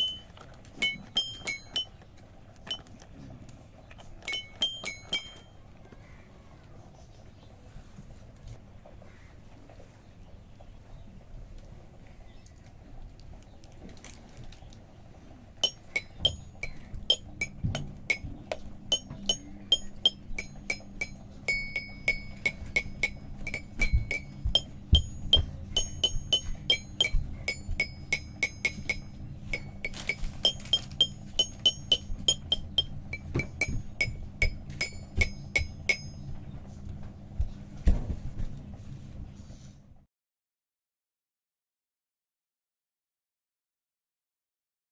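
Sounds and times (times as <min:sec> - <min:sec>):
toy xylophone notes: 0:00.0 - 0:02.0, 0:02.7 - 0:02.9, 0:04.2 - 0:05.6, 0:15.6 - 0:18.3, 0:18.9 - 0:36.2.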